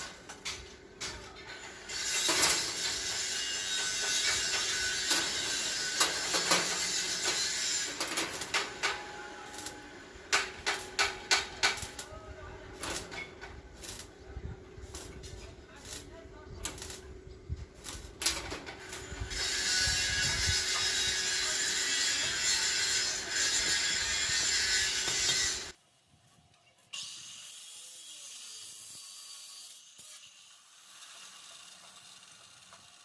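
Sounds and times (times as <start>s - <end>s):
tool rasping on metal: 1.6s - 12.0s, 18.8s - 25.8s.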